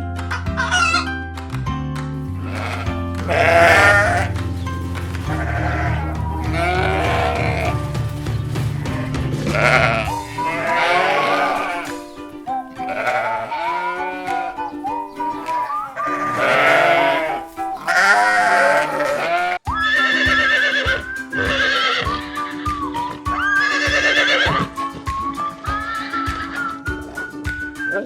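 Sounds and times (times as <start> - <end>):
background music: 0.0 - 28.0
livestock bleating: 2.4 - 4.4, 5.0 - 12.0, 12.8 - 14.7, 15.7 - 22.2, 23.4 - 24.7
music with steady beat and drone: 2.5 - 13.1.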